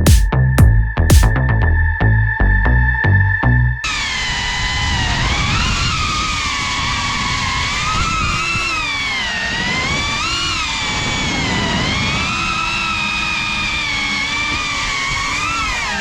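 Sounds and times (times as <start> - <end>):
drone motors whining: 3.8 - 16.0.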